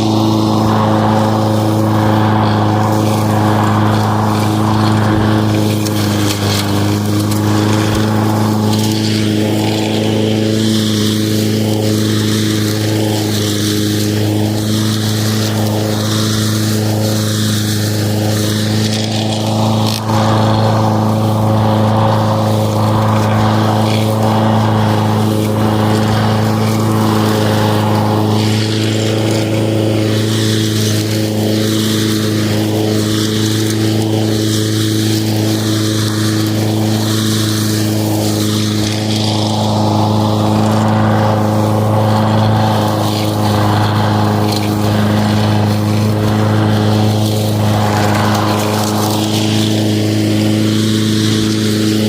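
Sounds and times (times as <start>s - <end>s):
lawn mower running: 0.0s - 52.0s.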